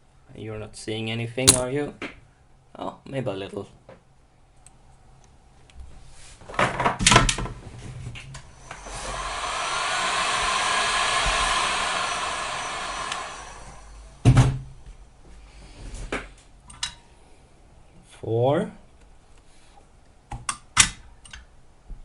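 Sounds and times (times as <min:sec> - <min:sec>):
heat gun blowing hot air: 0:08.4 - 0:14.2.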